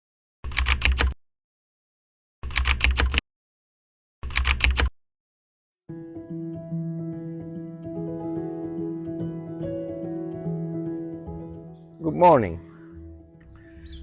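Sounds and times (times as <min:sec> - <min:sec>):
soft music: 0:05.9 - 0:14.0.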